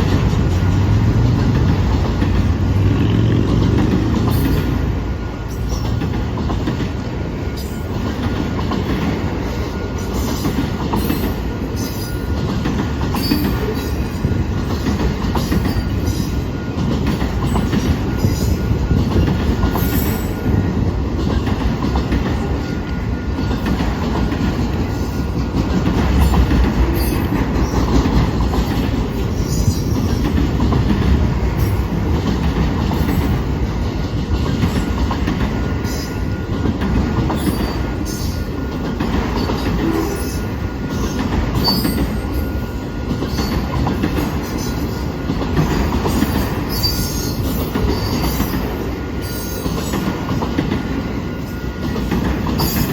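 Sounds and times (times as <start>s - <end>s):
train wheels rumbling on rail: 0.0s - 52.9s.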